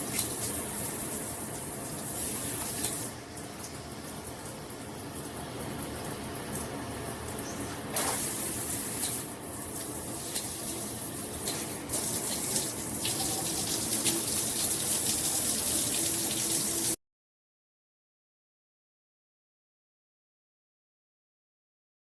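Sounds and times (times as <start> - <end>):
shower water spraying: 0.0 - 7.2, 7.8 - 17.0.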